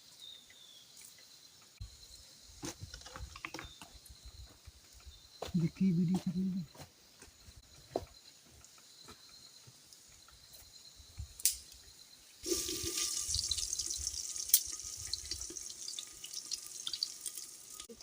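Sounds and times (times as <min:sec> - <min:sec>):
food sizzling in hot oil: 0:12.4 - 0:18.0.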